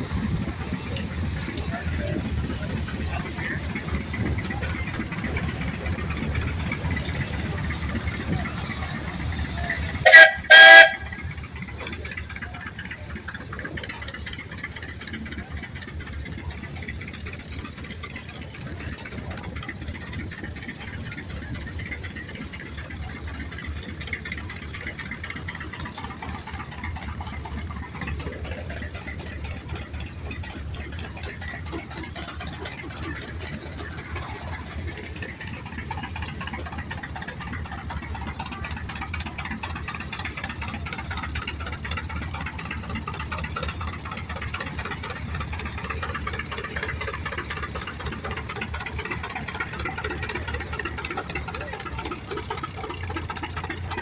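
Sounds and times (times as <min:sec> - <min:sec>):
tractor engine rumbling: 0:00.0 - 0:54.0
loud short pitched blasts: 0:10.0 - 0:11.1.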